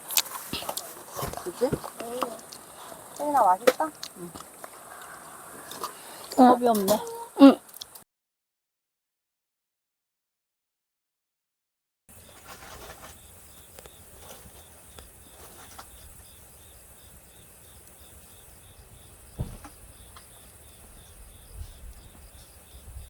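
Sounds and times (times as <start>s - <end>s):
crickets chirping: 0.0s - 8.0s, 12.1s - 23.0s
dull thump: 19.3s - 20.2s.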